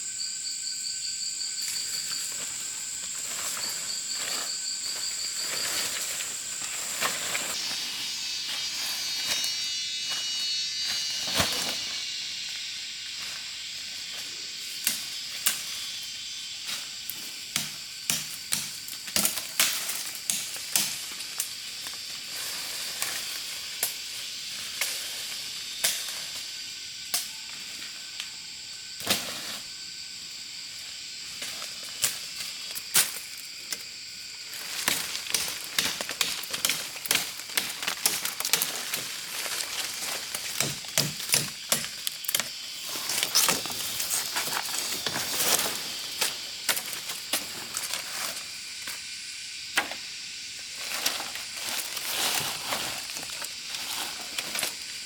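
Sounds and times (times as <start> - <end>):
high insect hiss: 0.0 - 55.0
knocks and clicks of handwork: 40.5 - 42.4.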